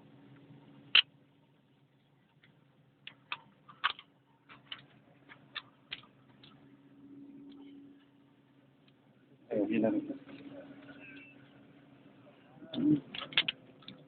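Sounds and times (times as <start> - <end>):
metal parts clicking: 13.1 - 14.0.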